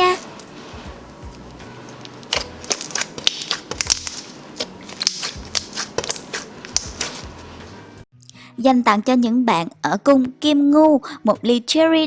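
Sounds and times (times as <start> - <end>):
sticky slime clicks and pops: 2.3 - 4.2, 5.0 - 7.1.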